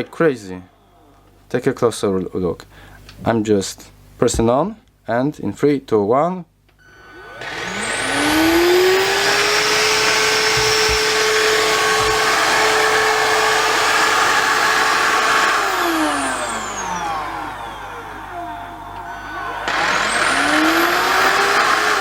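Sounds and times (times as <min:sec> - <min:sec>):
cordless vacuum cleaner motor whine: 0:06.8 - 0:22.0.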